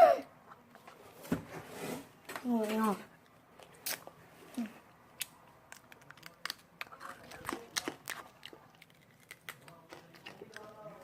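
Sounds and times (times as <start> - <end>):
sugar candy cracking and crunching: 5.2 - 11.0.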